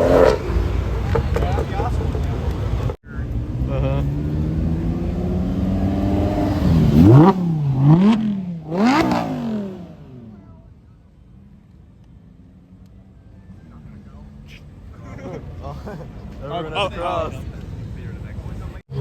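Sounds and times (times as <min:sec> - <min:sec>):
car engine accelerating through gears: 0:00.0 - 0:01.6, 0:03.2 - 0:10.5.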